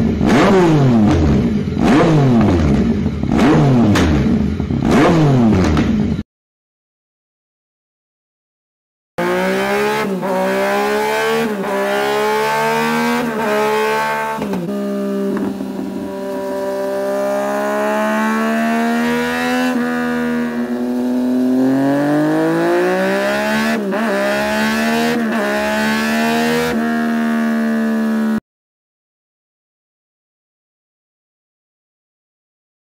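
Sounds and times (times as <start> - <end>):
motorcycle engine accelerating hard: 0.0 - 6.2, 9.2 - 28.4.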